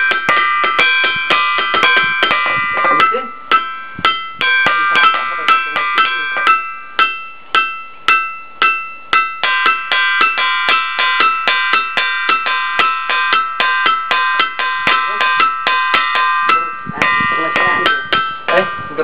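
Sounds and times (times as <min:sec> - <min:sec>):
stone struck ringing like a bell: 0:00.0 - 0:19.0.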